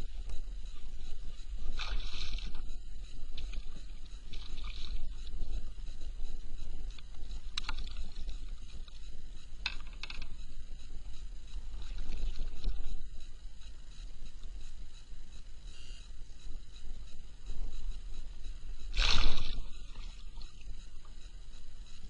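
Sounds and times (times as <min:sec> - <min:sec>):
water lapping against hull: 0:00.0 - 0:10.3, 0:11.4 - 0:13.4, 0:18.9 - 0:21.2
wind rumble on microphone: 0:00.0 - 0:13.4.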